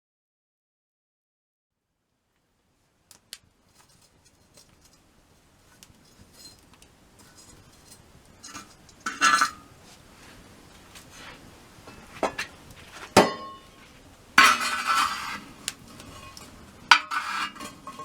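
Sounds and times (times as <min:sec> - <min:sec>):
light metallic clinks: 0:03.7 - 0:05.1, 0:05.7 - 0:09.8.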